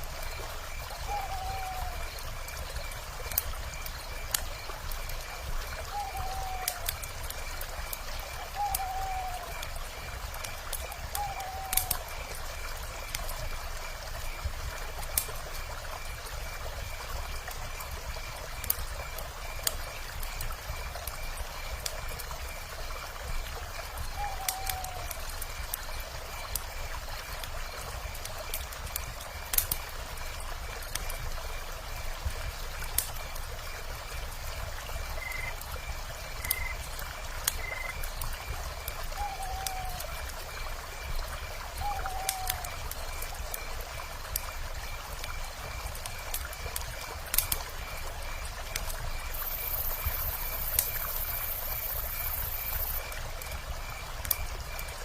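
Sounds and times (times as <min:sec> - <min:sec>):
flowing river: 0:00.0 - 0:55.0
wood fire crackling and popping: 0:00.0 - 0:55.0
owl calls: 0:01.0 - 0:02.0, 0:05.9 - 0:06.9, 0:08.6 - 0:09.5, 0:11.1 - 0:12.0, 0:24.1 - 0:25.1, 0:39.2 - 0:40.1, 0:41.8 - 0:42.7.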